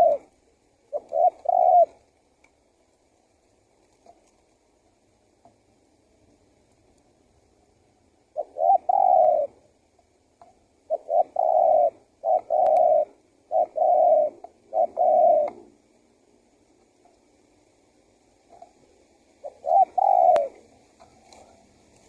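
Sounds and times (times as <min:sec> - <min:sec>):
dove cooing: 0:00.0 - 0:02.3, 0:08.2 - 0:09.8, 0:10.7 - 0:15.9, 0:18.4 - 0:22.0.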